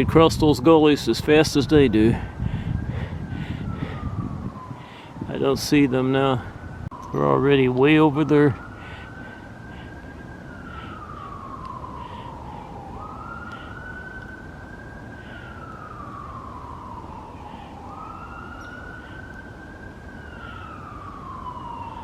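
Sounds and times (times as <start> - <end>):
distant siren wailing: 0.0 - 22.0.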